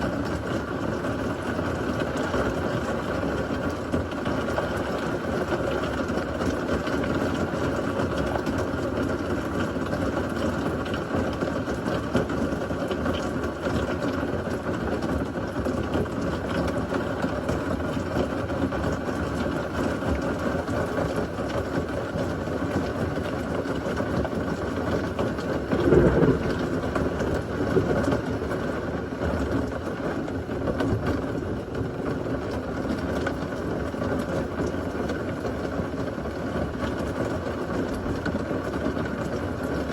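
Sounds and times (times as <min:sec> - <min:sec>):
heavy rain: 0:00.0 - 0:39.9
low thunder burst: 0:25.7 - 0:28.6.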